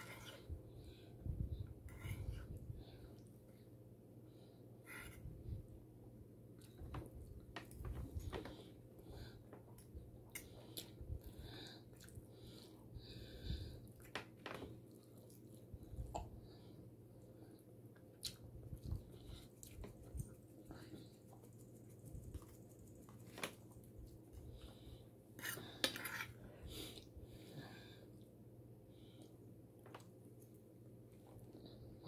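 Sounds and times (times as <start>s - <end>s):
person chewing: 18.1s - 20.3s.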